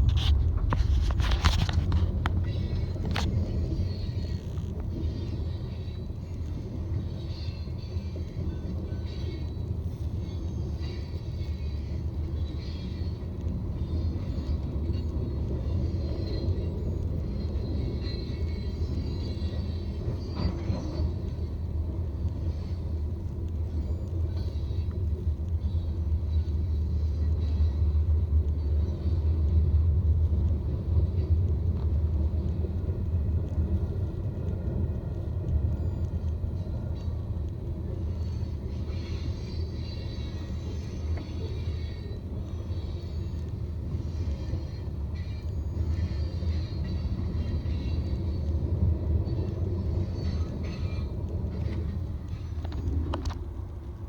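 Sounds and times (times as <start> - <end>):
car road and engine rumble: 0.0 - 8.8.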